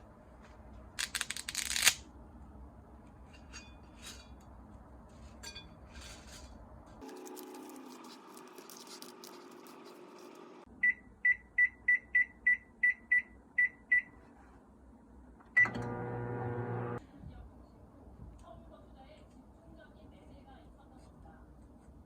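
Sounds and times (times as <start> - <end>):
microwave oven humming: 15.5 - 17.0
microwave keypad beeping: 15.6 - 17.0.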